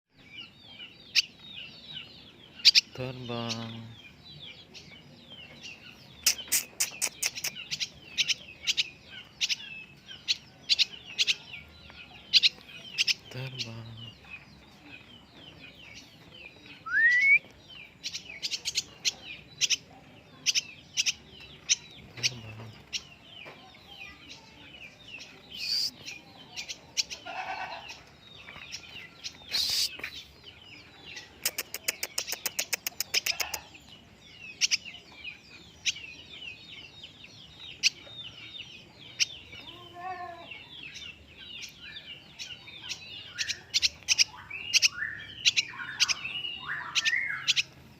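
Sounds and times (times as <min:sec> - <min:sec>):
bird twittering in high chirps: 0:00.1 - 0:47.9
rapid bird clicks: 0:31.4 - 0:33.6.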